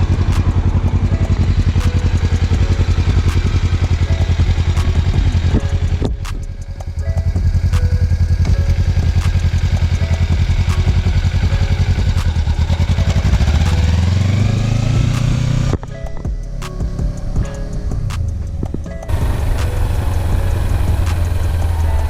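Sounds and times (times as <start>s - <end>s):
motorcycle engine revving: 0.0s - 15.9s, 19.1s - 22.0s.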